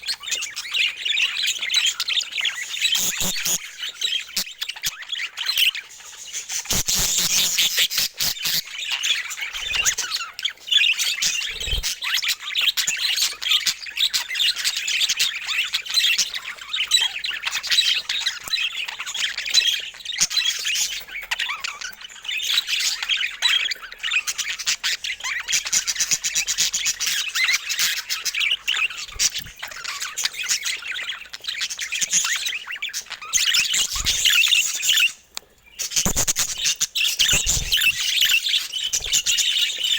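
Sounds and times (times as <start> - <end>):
budgerigars chattering and chirping: 0.0 - 39.9
budgerigar squawks: 2.8 - 4.9, 6.6 - 10.1, 36.0 - 38.2.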